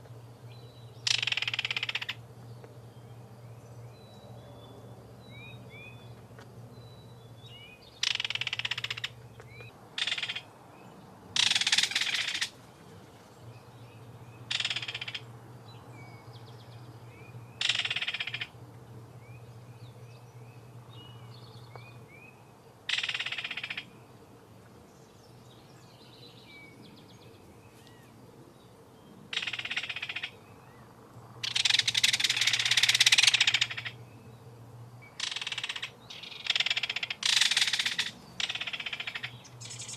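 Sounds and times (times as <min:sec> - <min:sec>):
harsh rasping bird calls: 0:01.0 - 0:02.2, 0:08.0 - 0:10.5, 0:11.4 - 0:12.6, 0:14.4 - 0:15.3, 0:17.6 - 0:18.6, 0:22.9 - 0:23.9, 0:29.3 - 0:30.4, 0:31.4 - 0:34.0, 0:35.1 - 0:39.9.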